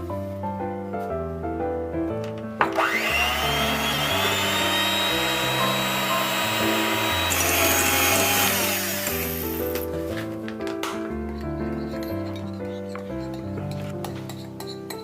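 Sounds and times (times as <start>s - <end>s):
kitchen appliance motor whining: 2.6s - 9.6s.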